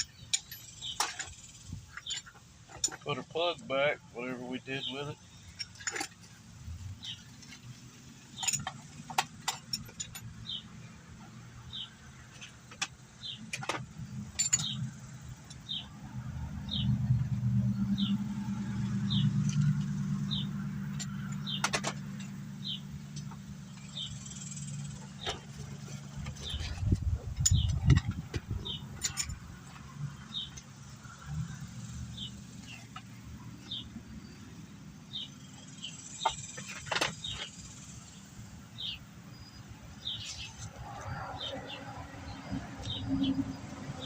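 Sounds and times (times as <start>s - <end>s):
tools and parts clicking: 0.0s - 3.1s, 5.3s - 6.4s, 8.3s - 10.6s, 12.3s - 15.8s, 20.9s - 22.4s, 23.1s - 30.8s, 35.2s - 38.2s
distant vehicle engine droning: 14.2s - 39.0s
bird chirping: 17.6s - 29.4s, 31.8s - 44.0s.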